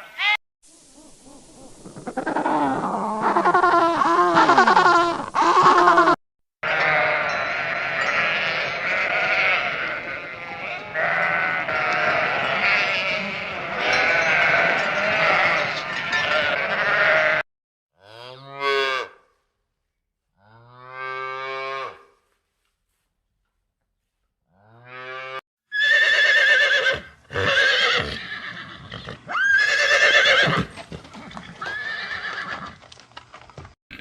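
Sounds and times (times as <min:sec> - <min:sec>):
single sheep bleats: 0:06.6 - 0:15.7, 0:16.3 - 0:17.4
flock of sheep bleating: 0:06.6 - 0:17.4.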